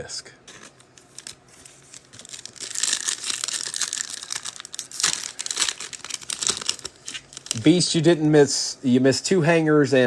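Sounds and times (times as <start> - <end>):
plastic wrapper crinkling: 0.5 - 8.1.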